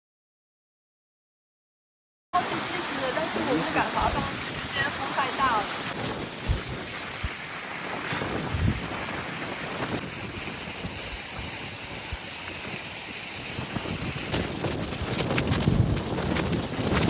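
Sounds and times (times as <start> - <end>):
wind buffeting microphone: 3.6 - 17.0.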